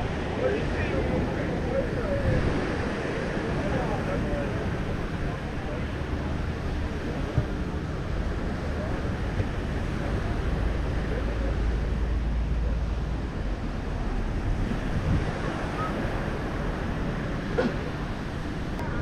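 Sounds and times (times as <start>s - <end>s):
surf washing on a beach: 0.0s - 19.0s
wind buffeting microphone: 0.0s - 19.0s.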